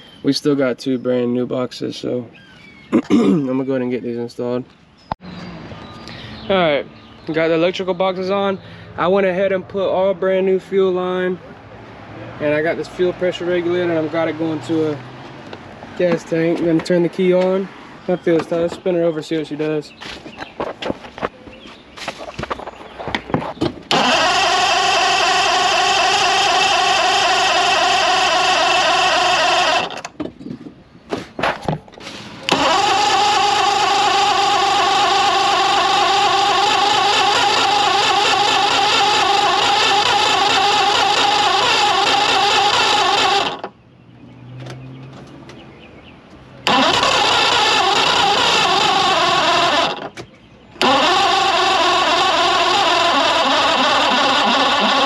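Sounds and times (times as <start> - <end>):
outboard engine starter cranking: 23.8 - 30.2, 32.0 - 43.7, 46.6 - 55.0.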